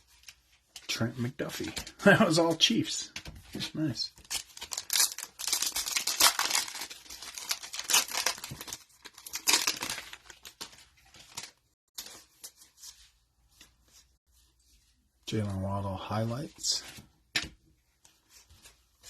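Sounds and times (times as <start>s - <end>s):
wrapper crinkling and tearing: 4.2s - 11.8s.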